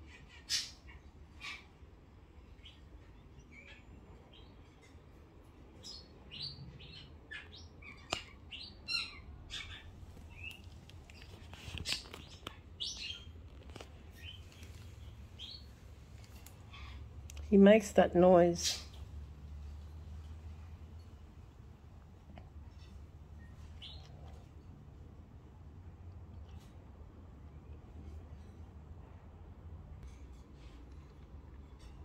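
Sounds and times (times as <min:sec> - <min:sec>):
bird chirping and squeaking: 0:00.0 - 0:01.7, 0:05.8 - 0:15.7, 0:22.7 - 0:24.3.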